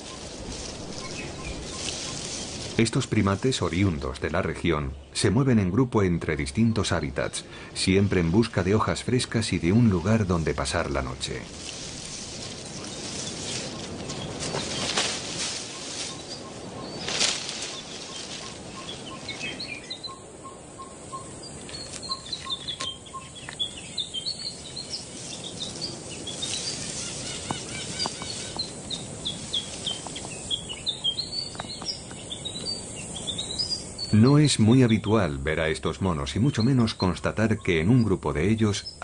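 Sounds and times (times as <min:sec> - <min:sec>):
rustling bursts: 0:00.0 - 0:03.7, 0:11.3 - 0:19.6, 0:24.6 - 0:30.6
birds chirping and trilling: 0:00.0 - 0:39.0.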